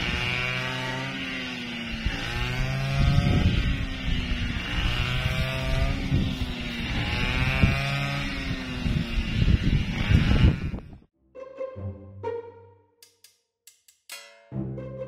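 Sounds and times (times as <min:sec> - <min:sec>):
small engine running: 0:00.0 - 0:11.1.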